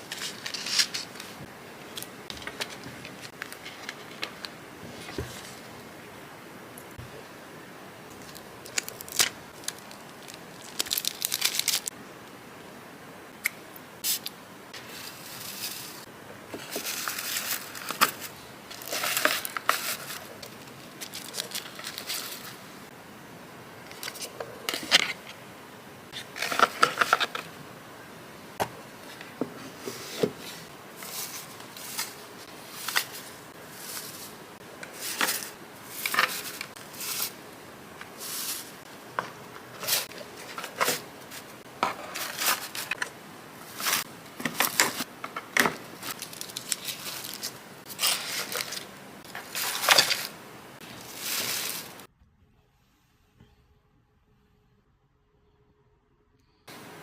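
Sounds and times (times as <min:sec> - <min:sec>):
paper and plastic wrapping rustling: 0:00.0 - 0:05.7, 0:08.2 - 0:11.9, 0:16.6 - 0:22.6, 0:29.0 - 0:37.4, 0:38.0 - 0:52.1.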